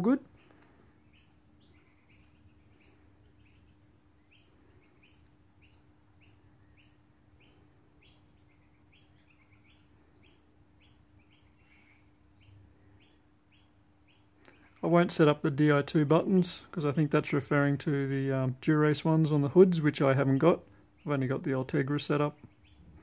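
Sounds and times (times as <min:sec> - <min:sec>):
bird chirping: 0:00.0 - 0:23.0
low steady hum: 0:00.0 - 0:23.0
short electronic beep: 0:11.6 - 0:12.0.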